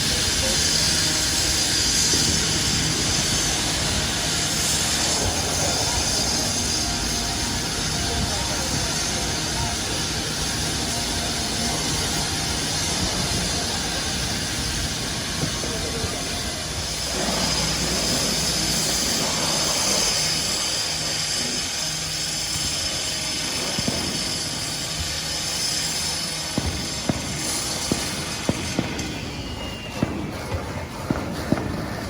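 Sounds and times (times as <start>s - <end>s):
fire engine pumps rumbling: 0.0s - 32.0s.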